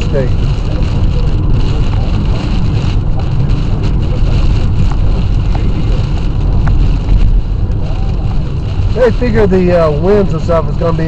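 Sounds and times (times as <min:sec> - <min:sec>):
engine and tyres rumbling: 0:00.0 - 0:11.0
rain hissing: 0:00.0 - 0:11.0
wind: 0:00.0 - 0:11.0.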